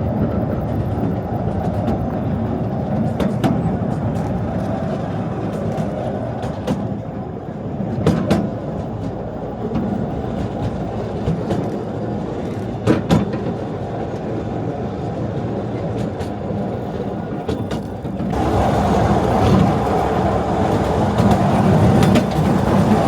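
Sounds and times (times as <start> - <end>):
train rumbling: 0.0 - 23.0
wheels clacking over rail joints: 0.0 - 23.0.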